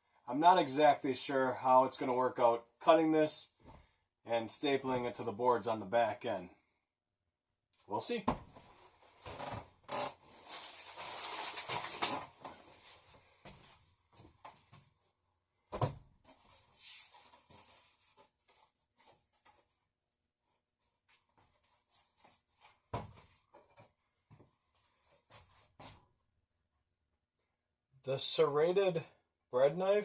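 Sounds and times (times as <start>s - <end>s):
knocks and thumps: 8.2s - 8.7s, 15.7s - 16.1s.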